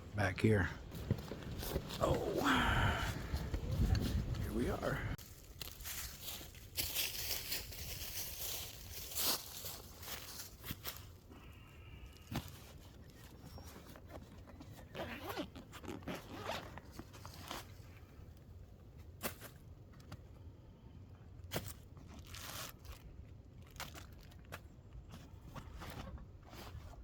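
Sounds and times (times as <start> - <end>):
zipper on a bag: 14.7 - 17.6.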